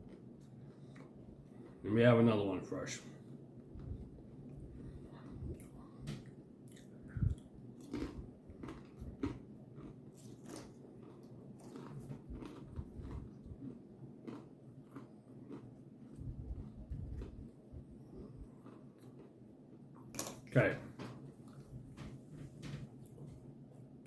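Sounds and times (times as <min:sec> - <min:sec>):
crunching and chewing cracker: 0:00.0 - 0:02.1, 0:03.8 - 0:20.6.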